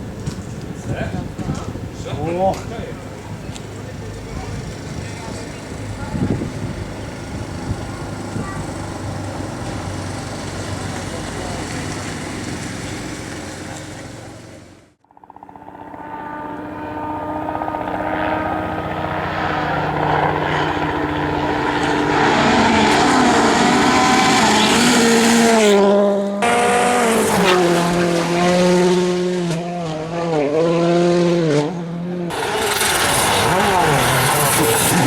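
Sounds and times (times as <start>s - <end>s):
rally car engine racing: 15.7s - 35.0s.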